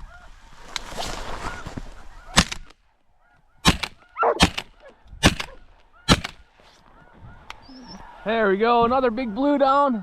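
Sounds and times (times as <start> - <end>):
shotgun shots: 3.6 - 6.5.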